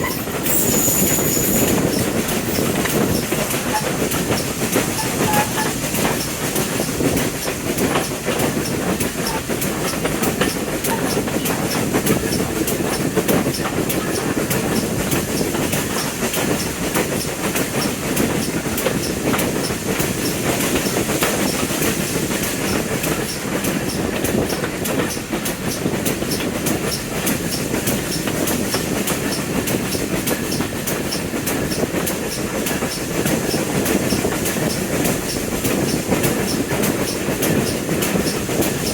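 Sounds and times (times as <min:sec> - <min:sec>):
train rumbling on rails: 0:00.0 - 0:38.9
wheel clicks on track: 0:00.0 - 0:38.9.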